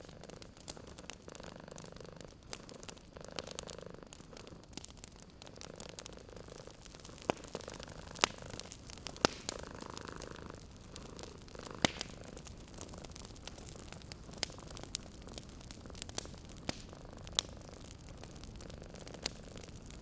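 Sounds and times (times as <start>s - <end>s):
cat purring: 0.0s - 19.9s
wood fire crackling: 0.0s - 20.0s.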